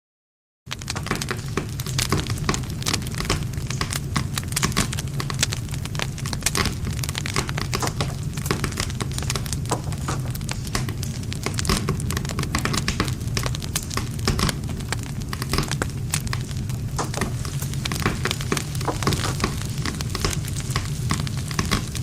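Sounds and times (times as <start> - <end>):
wood campfire crackling: 0.7 - 22.0.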